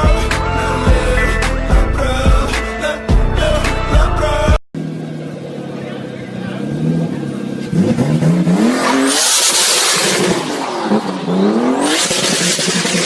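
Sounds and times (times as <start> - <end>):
car engine revving: 4.2 - 13.0.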